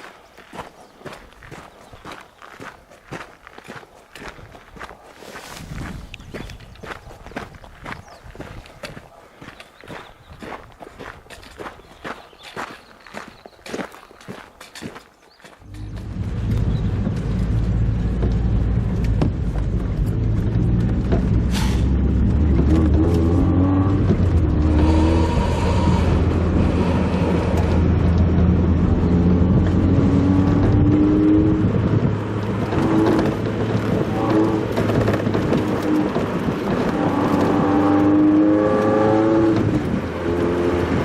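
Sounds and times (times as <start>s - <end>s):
road noise: 0.0s - 41.0s
car engine revving: 15.6s - 41.0s.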